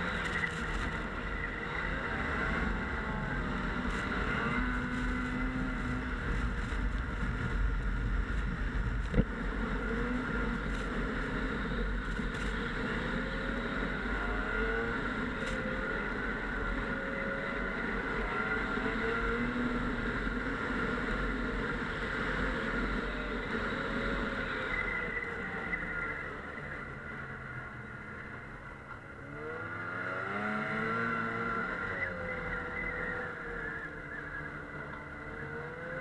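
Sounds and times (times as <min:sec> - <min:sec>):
snowmobile engine running: 0:00.0 - 0:36.0.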